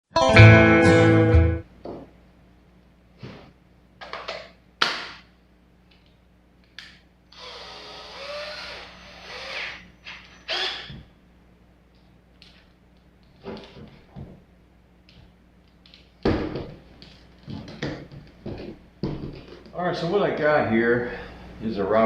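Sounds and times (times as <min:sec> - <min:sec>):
drill motor running: 0:07.3 - 0:10.9.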